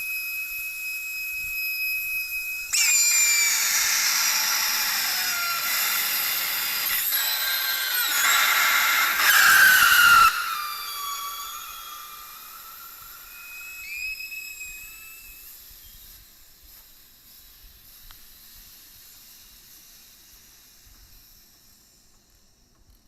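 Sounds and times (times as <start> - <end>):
whistling tone: 0.0 - 16.2
refrigerant hissing from a hose: 0.0 - 23.0.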